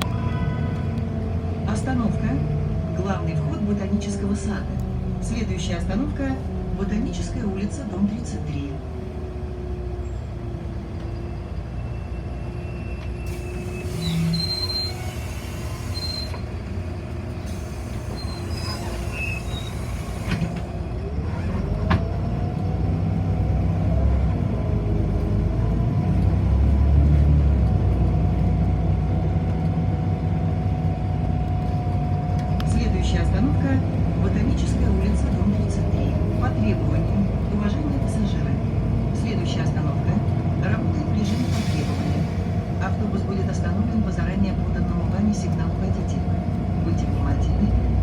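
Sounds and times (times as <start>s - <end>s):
bus whine rising in pitch: 0.0s - 37.6s
bus rumble: 0.0s - 48.0s.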